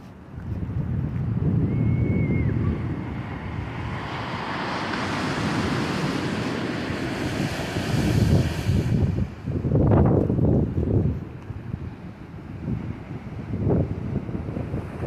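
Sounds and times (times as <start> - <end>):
wind buffeting microphone: 0.0 - 15.0
sea waves rushing in: 1.2 - 15.0
high whistling tone: 1.6 - 2.8.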